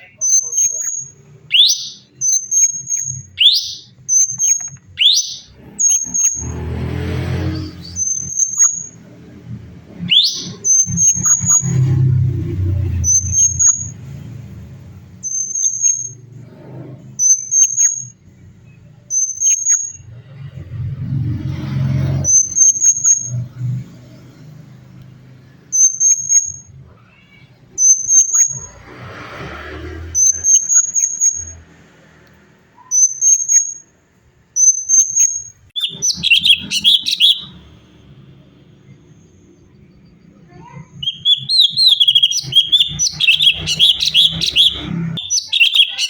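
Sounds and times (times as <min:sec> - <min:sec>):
bird whistling calls: 0:00.0 - 0:06.6, 0:07.6 - 0:09.0, 0:09.9 - 0:11.9, 0:34.6 - 0:37.8, 0:40.5 - 0:46.0.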